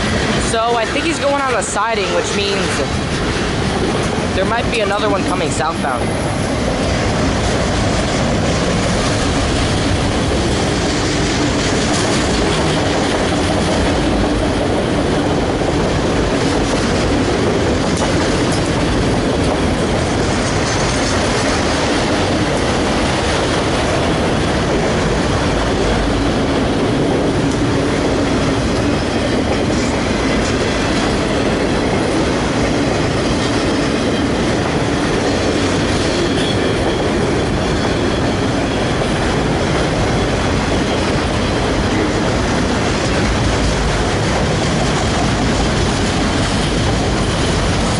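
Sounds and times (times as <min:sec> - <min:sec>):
freight train wheels on rails: 0:00.0 - 0:47.9.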